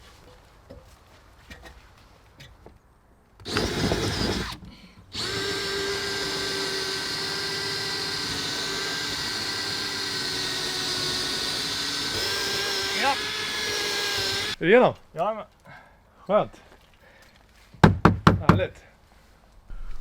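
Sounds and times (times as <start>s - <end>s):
power drill boring through ceiling: 3.5s - 14.6s.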